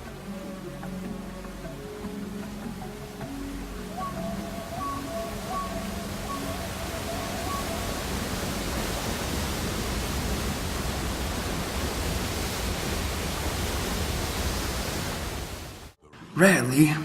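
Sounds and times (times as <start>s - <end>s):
steady rushing noise: 4.0s - 16.0s.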